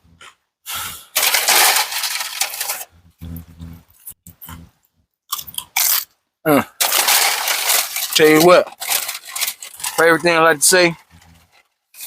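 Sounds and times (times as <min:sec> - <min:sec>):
food packaging crinkling: 0:01.1 - 0:02.9, 0:05.3 - 0:06.1, 0:06.8 - 0:12.0
person humming: 0:03.1 - 0:04.7, 0:06.5 - 0:06.7.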